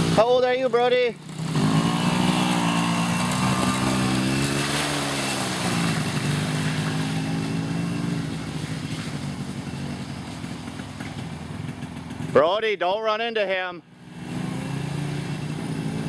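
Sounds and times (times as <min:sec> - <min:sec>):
small engine revving: 0:00.0 - 0:12.4, 0:13.9 - 0:16.0.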